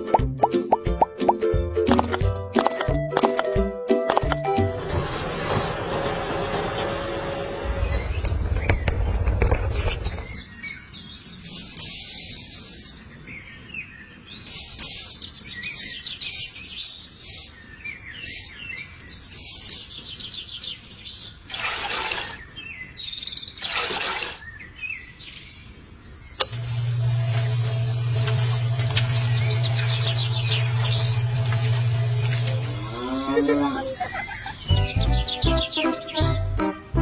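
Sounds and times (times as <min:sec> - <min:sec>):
small birds chirping: 0:07.8 - 0:36.6.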